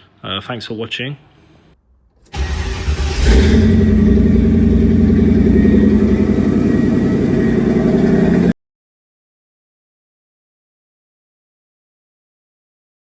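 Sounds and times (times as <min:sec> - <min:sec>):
car engine running: 0:02.3 - 0:08.5.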